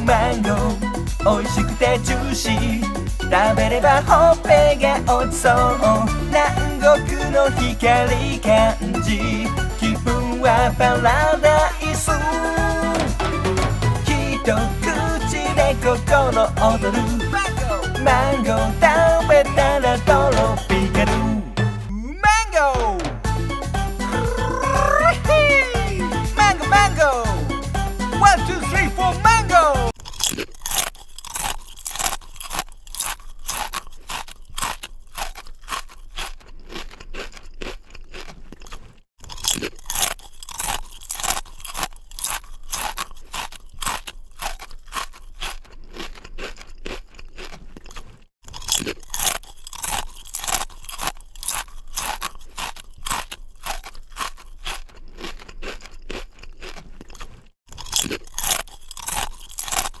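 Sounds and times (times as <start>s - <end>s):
chewing crunchy mango: 29.9s - 60.0s.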